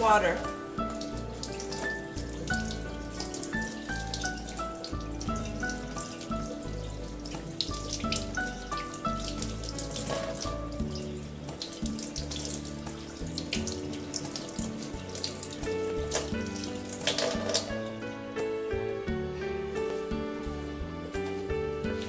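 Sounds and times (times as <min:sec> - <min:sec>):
background music: 0:00.0 - 0:22.0
tap water splashing: 0:00.4 - 0:18.0.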